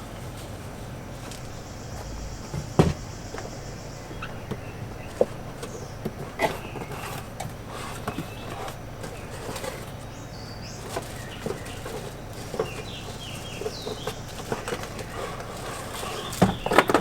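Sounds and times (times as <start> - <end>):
grill parts and packaging knocking: 0.0 - 3.5, 4.5 - 17.0.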